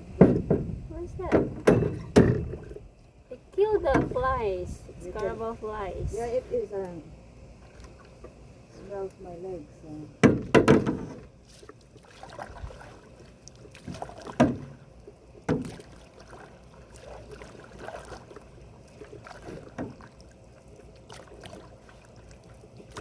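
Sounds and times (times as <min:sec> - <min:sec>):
dull thumps: 0:00.0 - 0:02.8, 0:03.8 - 0:04.6, 0:10.2 - 0:11.3
paddle strokes in water: 0:10.8 - 0:23.0.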